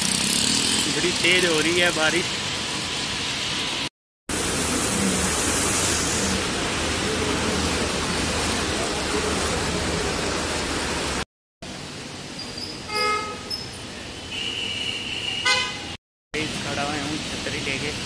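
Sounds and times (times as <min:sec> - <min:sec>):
heavy rain hissing: 0:00.8 - 0:11.2.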